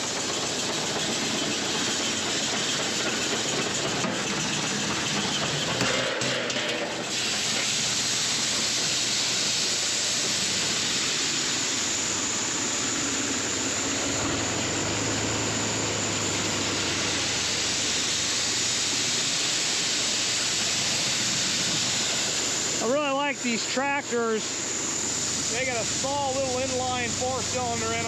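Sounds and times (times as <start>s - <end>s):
tractor engine hum: 12.8s - 18.7s, 24.6s - 28.0s.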